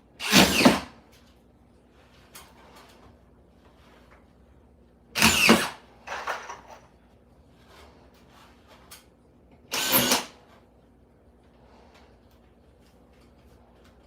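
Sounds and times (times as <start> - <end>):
power drill running: 0.2 - 0.9, 5.2 - 6.6, 9.7 - 10.4.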